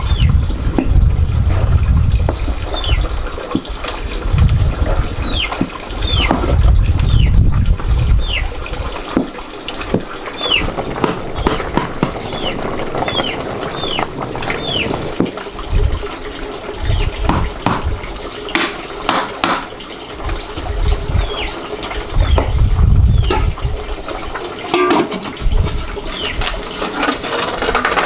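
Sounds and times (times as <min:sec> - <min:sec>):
water splashing and pouring: 0:00.0 - 0:28.0
knocks: 0:09.9 - 0:14.3, 0:17.3 - 0:17.9, 0:18.5 - 0:19.7.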